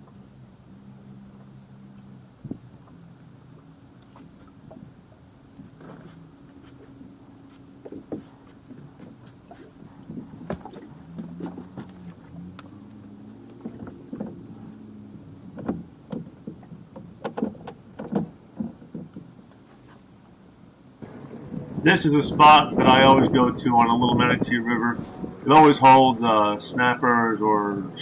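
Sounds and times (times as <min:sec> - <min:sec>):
small boat motor humming: 0:00.0 - 0:28.0
water slapping against hull: 0:03.9 - 0:20.1.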